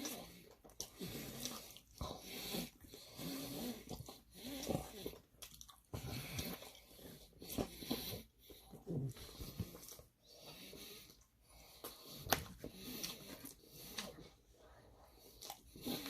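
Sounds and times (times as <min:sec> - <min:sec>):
chewing and biting food: 0:00.0 - 0:10.1, 0:15.2 - 0:16.0.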